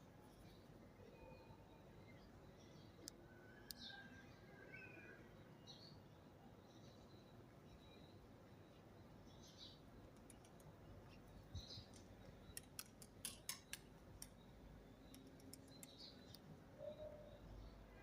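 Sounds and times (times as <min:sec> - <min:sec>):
faint bird chirps: 0:00.2 - 0:12.8, 0:13.6 - 0:18.0
sharp clicks and ticks: 0:10.1 - 0:10.8, 0:11.8 - 0:14.4, 0:15.0 - 0:16.5.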